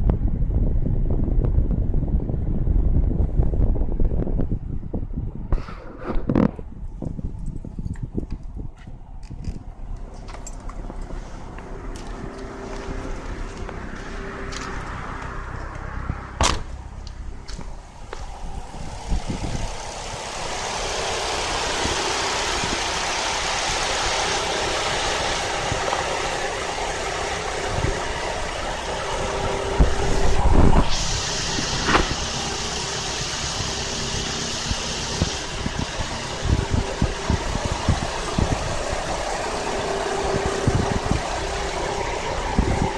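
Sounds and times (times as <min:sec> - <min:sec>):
cooling fan blowing air: 0:00.0 - 0:42.9
car engine idling: 0:06.6 - 0:42.9
bright hiss: 0:17.9 - 0:42.9.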